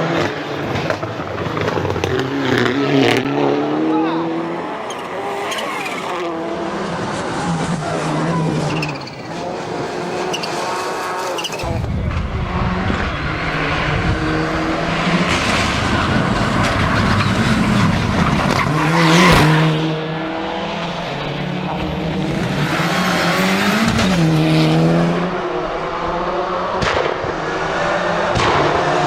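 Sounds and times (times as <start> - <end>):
racing car engine revving: 0.0 - 29.0
heavy rush of noise: 3.0 - 24.0.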